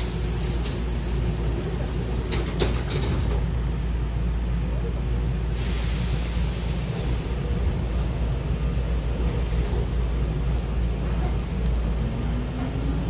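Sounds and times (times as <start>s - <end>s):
loud hiss: 0.0s - 2.7s, 5.5s - 7.6s
train rumbling from inside: 0.0s - 13.0s.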